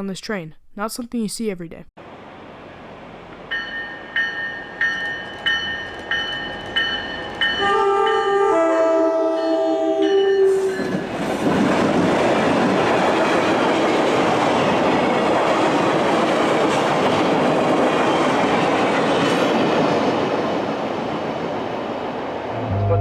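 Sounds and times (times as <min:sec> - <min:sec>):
train rolling on rails: 0:02.0 - 0:08.4, 0:09.1 - 0:23.0
locomotive air horn: 0:07.6 - 0:10.7, 0:22.5 - 0:23.0.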